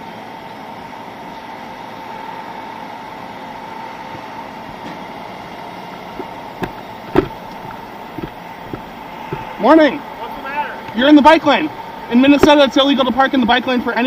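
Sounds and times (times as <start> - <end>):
truck engine humming: 1.8 - 12.9
sharp knocks: 6.0 - 9.6.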